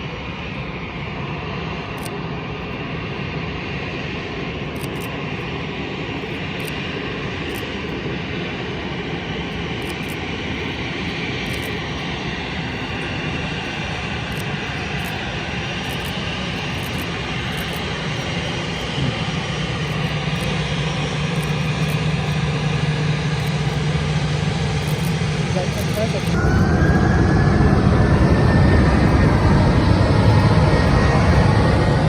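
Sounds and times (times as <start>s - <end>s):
jet engines rushing: 0.0s - 32.0s
low hum: 0.3s - 32.0s.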